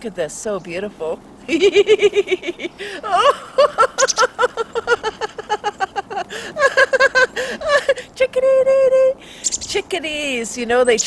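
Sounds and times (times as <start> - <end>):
woman giggling and laughing: 1.5 - 9.2.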